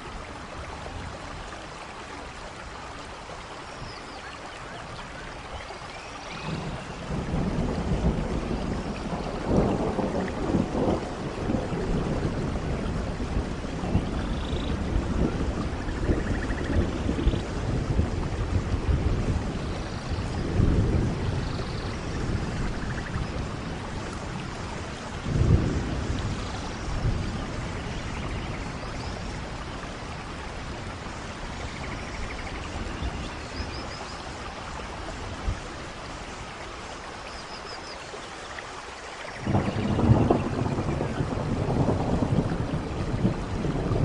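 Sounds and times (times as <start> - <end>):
steady rain: 0.0 - 44.0
thunder rumbling and clapping: 6.4 - 33.4, 39.4 - 44.0.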